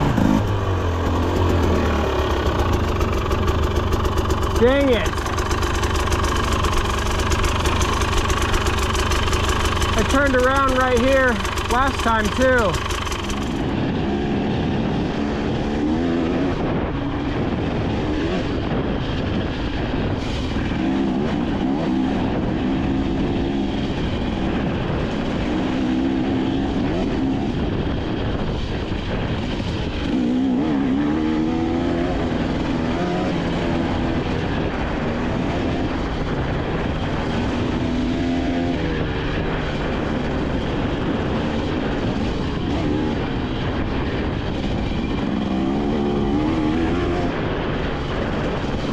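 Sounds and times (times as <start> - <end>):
dirt bike engine revving: 0.0 - 18.9, 20.3 - 27.7, 29.4 - 48.9.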